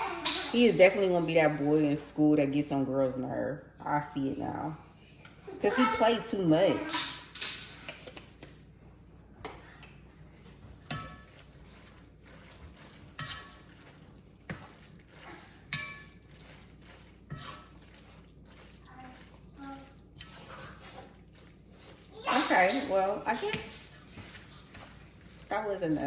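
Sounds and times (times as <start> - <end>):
utensil clinking and scraping pot: 0.0 - 8.7, 9.4 - 26.0
wet squelching: 9.4 - 26.0.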